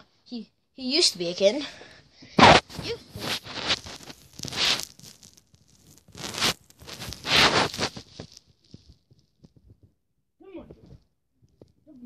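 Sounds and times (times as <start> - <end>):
rustling and scraping: 2.4 - 9.9.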